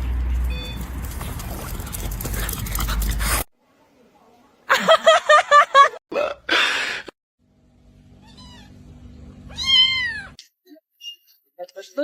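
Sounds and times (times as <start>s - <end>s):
cat meowing: 8.2s - 8.8s, 9.5s - 10.4s.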